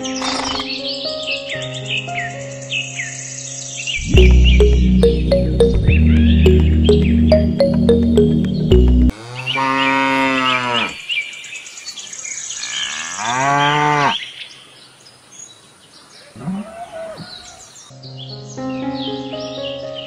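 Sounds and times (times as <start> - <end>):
background music: 0.0 - 9.1
faint birdsong: 0.0 - 20.0
cattle mooing: 9.1 - 11.0.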